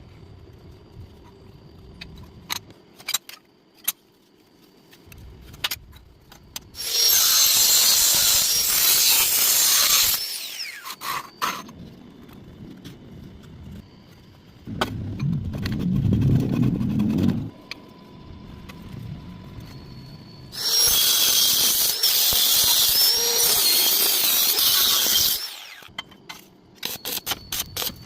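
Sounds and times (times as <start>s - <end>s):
power tool whining on metal: 6.8s - 11.6s, 20.5s - 25.9s
low rumble: 14.6s - 20.5s.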